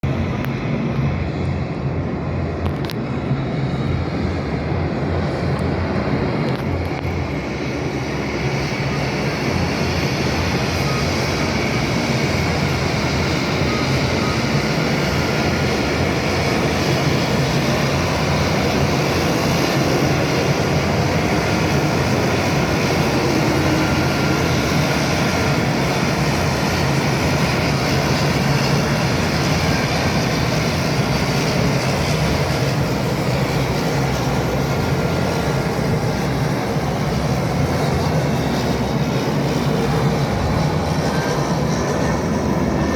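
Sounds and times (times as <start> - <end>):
airplane engine rumble: 0.0 - 42.9.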